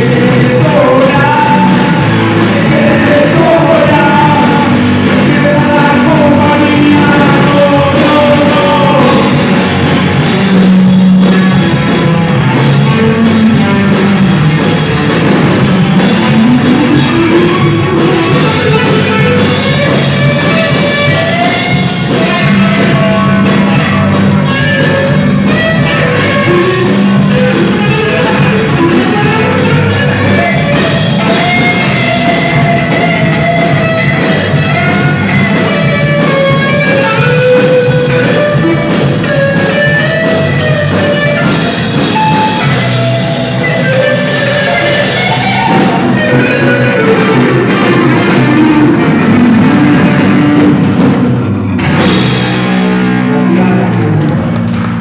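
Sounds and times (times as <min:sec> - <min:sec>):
person singing lead vocal: 0:00.0 - 0:10.2, 0:53.1 - 0:54.5
rock band playing: 0:00.0 - 0:55.0.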